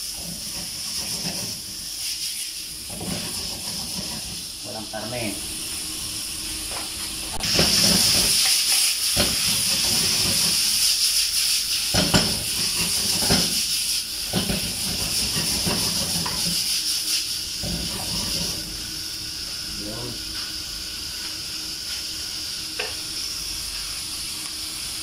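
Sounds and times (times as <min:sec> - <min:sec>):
spatula scraping a pan: 0:00.0 - 0:04.4, 0:07.4 - 0:10.9, 0:11.9 - 0:18.6
food sizzling in a frying pan: 0:00.0 - 0:25.0.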